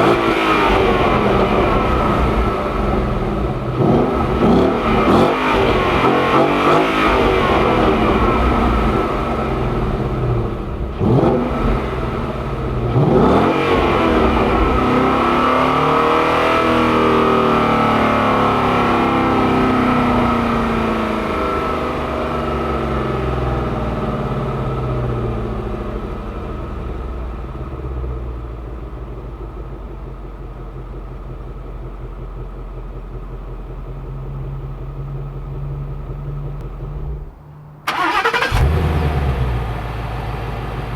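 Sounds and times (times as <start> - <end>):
car engine revving high: 0.0 - 26.9, 36.6 - 40.3.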